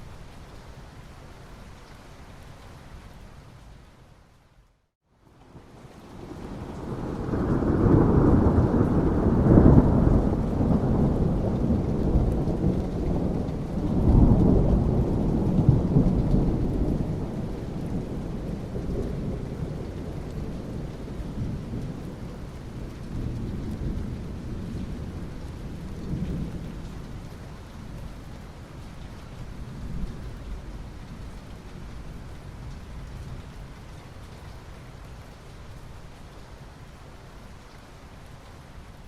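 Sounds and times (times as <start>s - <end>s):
steady rain: 0.0s - 39.0s
thunder rumbling: 6.1s - 28.1s.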